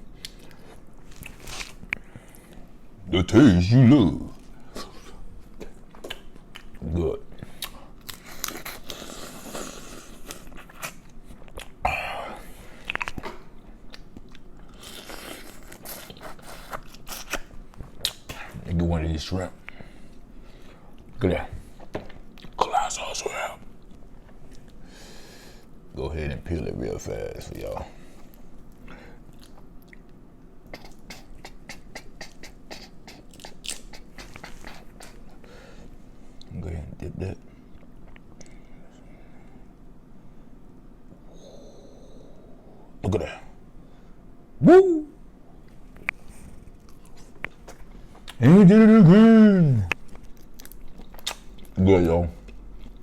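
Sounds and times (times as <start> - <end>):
chewing and biting food: 28.6 - 35.4, 45.8 - 48.4, 49.9 - 51.8, 52.4 - 53.0
wet mouth clicks: 30.7 - 35.2, 49.9 - 51.6
food crunch: 49.9 - 51.8.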